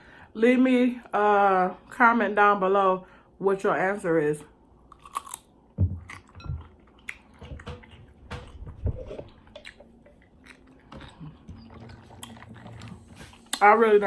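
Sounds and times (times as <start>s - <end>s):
chewing and biting food: 4.9s - 13.7s.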